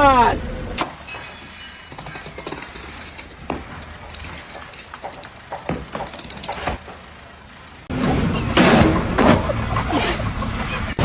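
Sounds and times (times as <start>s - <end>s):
metallic knocks and clicks: 1.9s - 6.8s.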